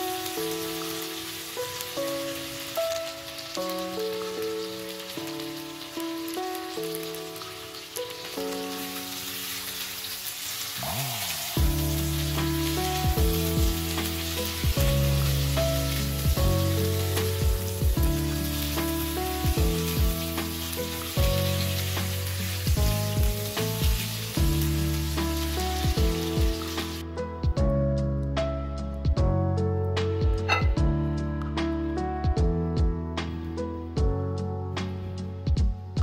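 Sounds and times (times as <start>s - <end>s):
chicken sizzling in a wok: 0.0s - 27.1s
background music with bass: 10.8s - 36.0s.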